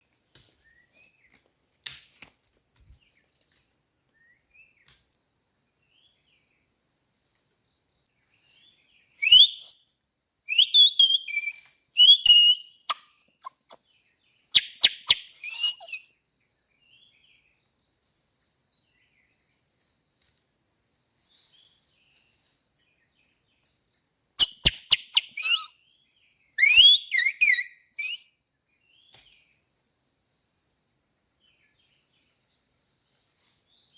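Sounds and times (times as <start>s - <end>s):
insects droning: 0.0s - 33.9s
grass reed whistle: 9.2s - 9.7s, 10.5s - 13.8s, 14.6s - 16.0s, 24.4s - 25.7s, 26.6s - 28.3s.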